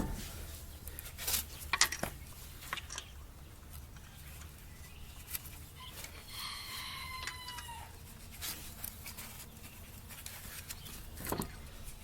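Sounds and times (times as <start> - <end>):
rooster crowing: 6.3 - 8.0.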